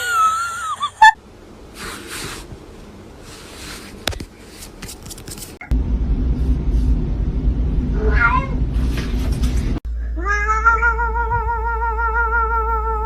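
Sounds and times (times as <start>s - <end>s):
low rumble: 5.7s - 13.0s
cat meowing: 8.0s - 8.6s, 10.2s - 13.0s
cat yowling: 8.0s - 8.6s, 10.2s - 13.0s.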